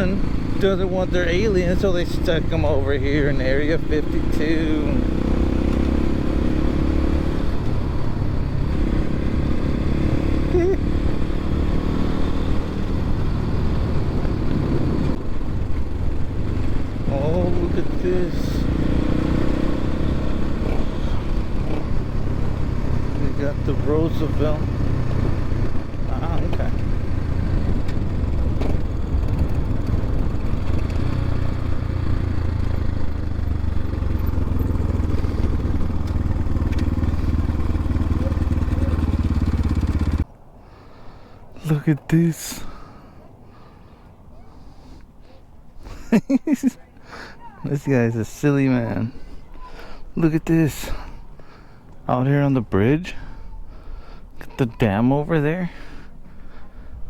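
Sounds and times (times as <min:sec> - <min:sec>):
dirt bike engine running: 0:00.0 - 0:40.3.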